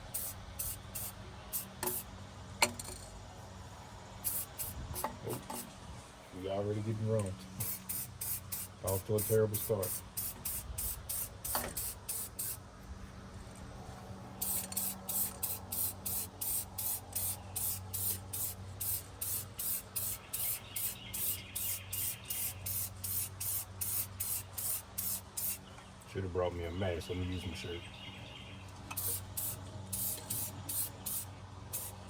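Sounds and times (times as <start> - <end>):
spray-paint can hissing: 0.0 - 2.0, 4.2 - 5.7, 7.6 - 12.6, 14.4 - 25.6, 29.0 - 32.0.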